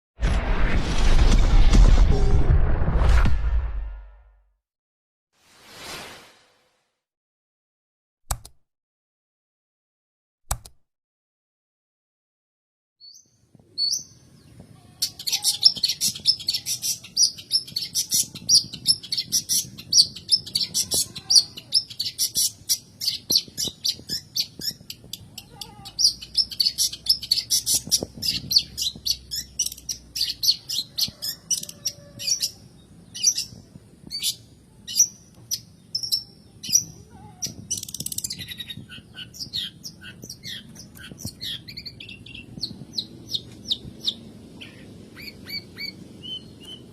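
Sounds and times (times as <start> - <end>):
bird singing: 34.1 - 46.9.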